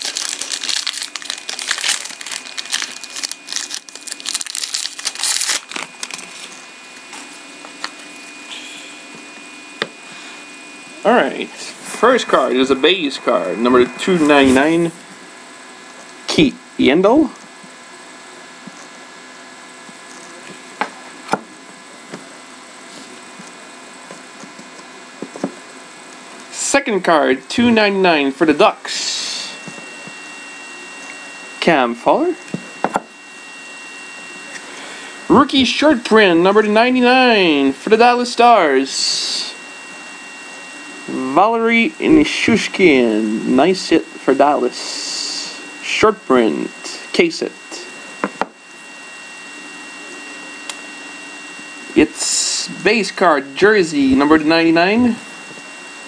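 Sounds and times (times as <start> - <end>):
wrapper crinkling: 0.0 - 6.6
electrical hum: 0.0 - 56.0.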